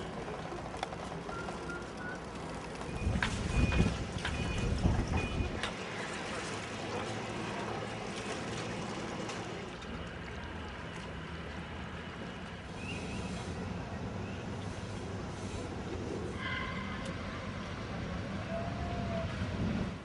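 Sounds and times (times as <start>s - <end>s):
low mechanical hum: 0.0s - 20.0s
water noise: 0.0s - 20.0s
wind: 0.0s - 20.0s.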